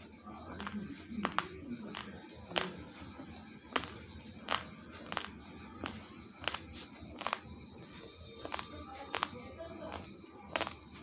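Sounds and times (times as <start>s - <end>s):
chewing hard rice crunches: 8.5s - 10.9s.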